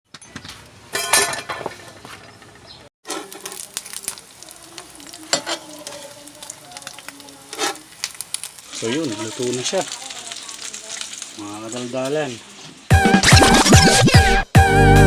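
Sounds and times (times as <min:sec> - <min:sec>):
meat sizzling in a skillet: 0:03.0 - 0:13.7.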